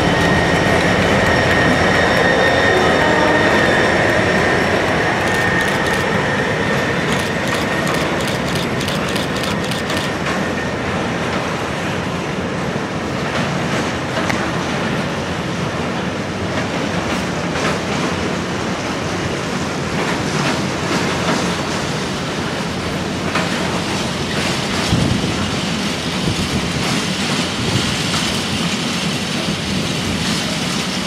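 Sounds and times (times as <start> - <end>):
wheels clicking over rail joints: 0.0 - 6.4
steady high ring: 0.0 - 8.9
diesel locomotive moving away: 0.0 - 31.0
sharp clicks: 5.2 - 6.2, 7.1 - 10.2.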